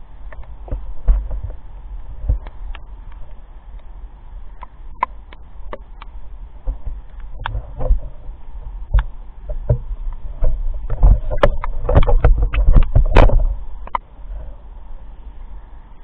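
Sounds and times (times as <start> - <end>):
knocks and thumps: 8.9 - 14.0.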